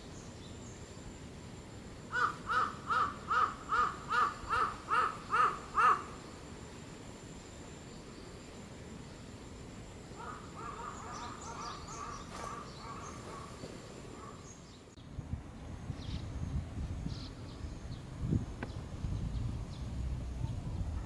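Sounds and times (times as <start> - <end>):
bird chattering: 10.2 - 14.6
low rumbling noise: 15.0 - 21.0.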